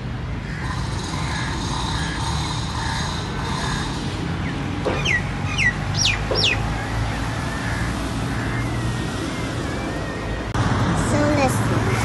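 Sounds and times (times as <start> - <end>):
bird calling descending notes: 4.9 - 10.5.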